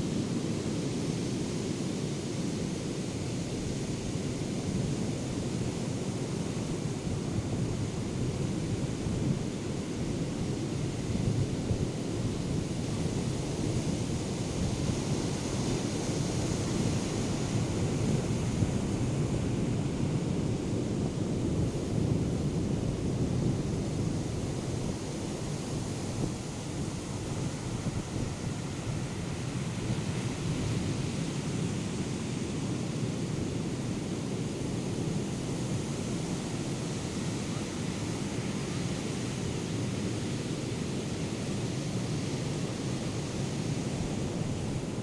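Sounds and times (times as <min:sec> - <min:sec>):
wind buffeting microphone: 0:11.0 - 0:31.9.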